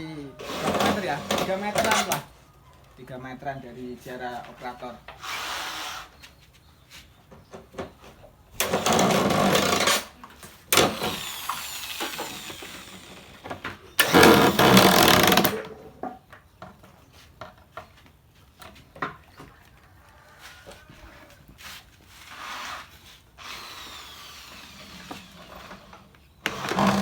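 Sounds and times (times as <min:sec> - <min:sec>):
power drill drilling: 0:00.4 - 0:02.2, 0:05.2 - 0:06.1, 0:08.6 - 0:15.7, 0:23.4 - 0:27.0.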